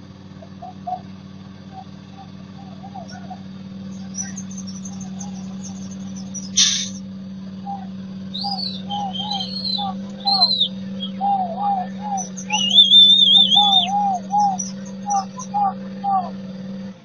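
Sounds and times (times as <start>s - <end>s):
birds calling and singing: 0.0s - 16.9s
steady low hum: 0.0s - 17.0s
short hiss: 6.5s - 7.0s.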